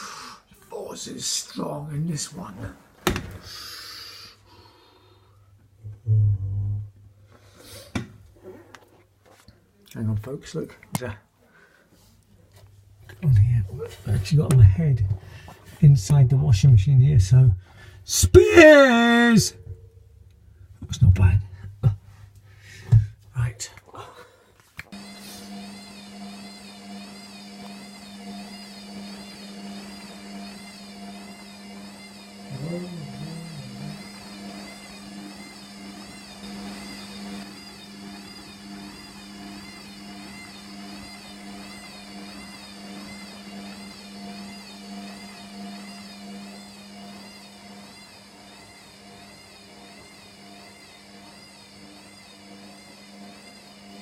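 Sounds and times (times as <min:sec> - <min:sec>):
washing machine humming: 0:24.9 - 0:54.0
high wavering whine: 0:32.5 - 0:35.5.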